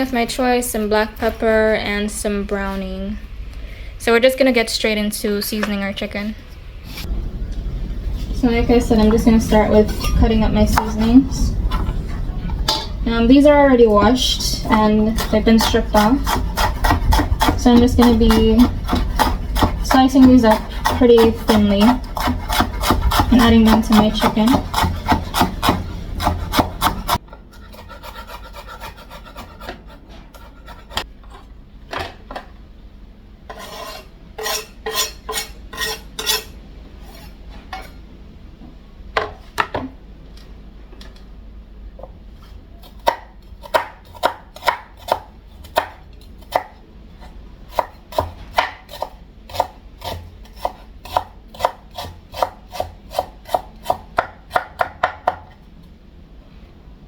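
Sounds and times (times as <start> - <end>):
voice-over: 8.3 - 16.2, 23.3 - 24.6.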